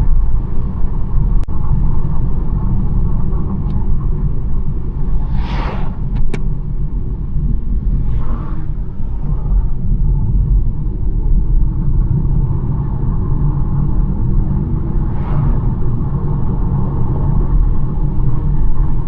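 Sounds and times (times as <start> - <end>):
car engine and tyre rumble: 0.0 - 19.0
brief whoosh: 4.8 - 7.0, 7.6 - 9.6, 14.8 - 16.0.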